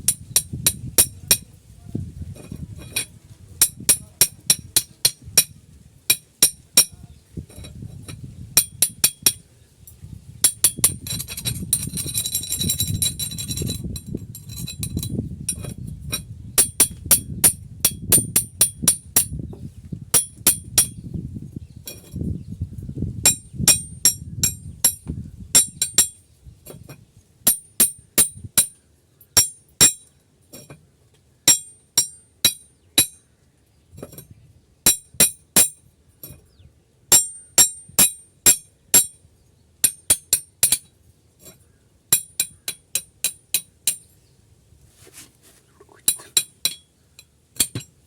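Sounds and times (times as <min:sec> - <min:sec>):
small hammer tapping on metal: 0:00.1 - 0:01.5, 0:02.8 - 0:09.4, 0:10.4 - 0:19.4, 0:20.2 - 0:21.0, 0:23.3 - 0:30.8, 0:31.5 - 0:33.2, 0:34.9 - 0:36.4, 0:37.1 - 0:39.2, 0:39.8 - 0:44.1, 0:46.1 - 0:48.0.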